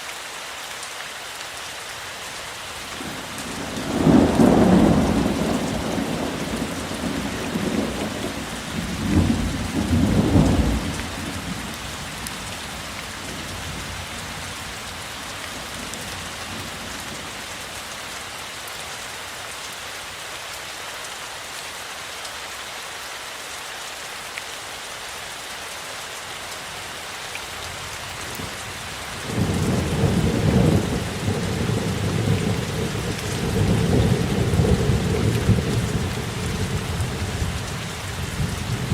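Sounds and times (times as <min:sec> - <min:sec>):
heavy rain hissing: 0:00.0 - 0:38.9
thunder rumbling: 0:03.6 - 0:11.5, 0:29.2 - 0:38.9.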